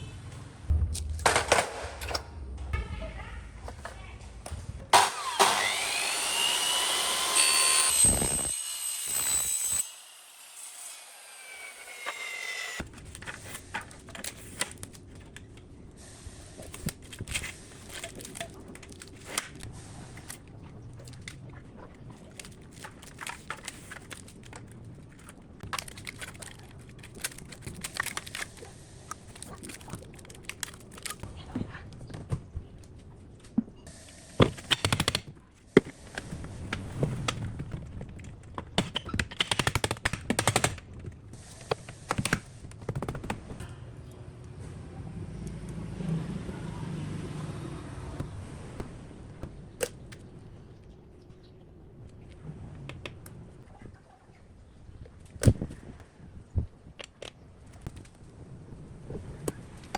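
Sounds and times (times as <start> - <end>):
power tool running: 5.0 - 12.8.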